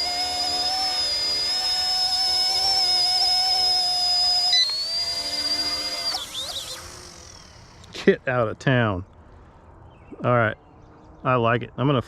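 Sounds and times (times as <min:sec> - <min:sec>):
rc helicopter motors whining: 0:00.0 - 0:08.0.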